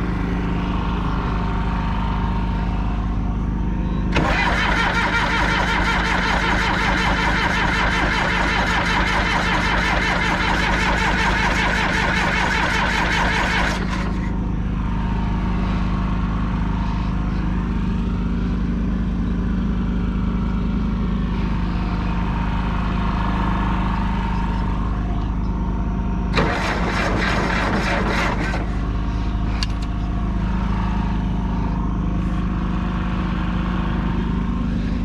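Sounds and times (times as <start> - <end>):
bulldozer diesel engine running: 0.0 - 35.0
loud mechanical clatter: 4.1 - 14.6, 26.3 - 31.4.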